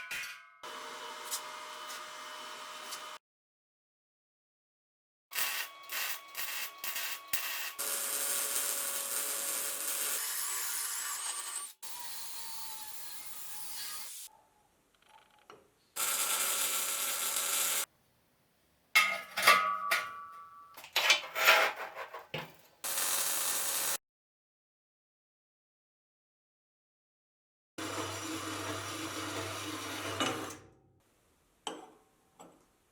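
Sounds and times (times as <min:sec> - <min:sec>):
tools rubbing and scraping: 0:21.0 - 0:22.3.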